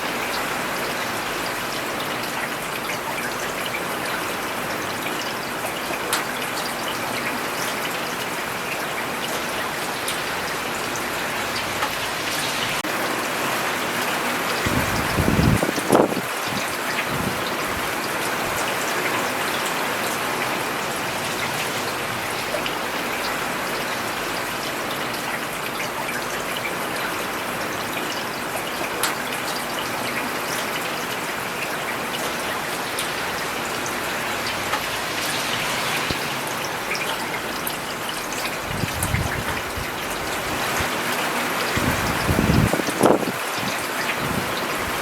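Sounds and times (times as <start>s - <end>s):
rain on a paved road: 0.0s - 45.0s.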